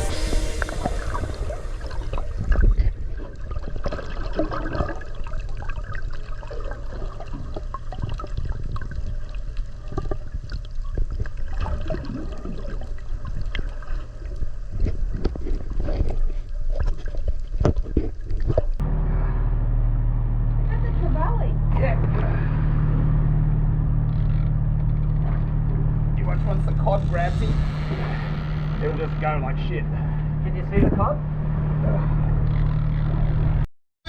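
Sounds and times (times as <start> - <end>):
steady low rumble: 0.0 - 4.4, 18.7 - 33.7
water sloshing and gurgling: 0.0 - 19.8, 20.5 - 33.7.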